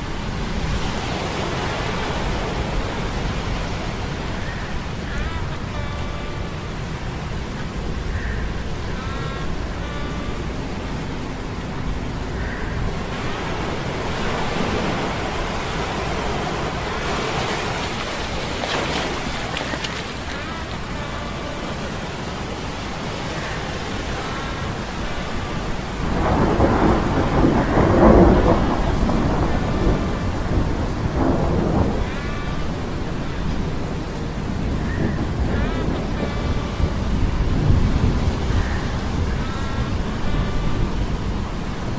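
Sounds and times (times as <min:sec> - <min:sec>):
steady rain: 0:00.0 - 0:41.9
thunder rolling: 0:25.8 - 0:32.1.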